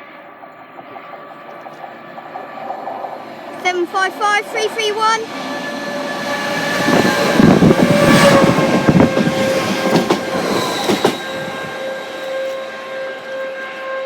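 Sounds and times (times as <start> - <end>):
steady high tone: 3.0 - 14.0.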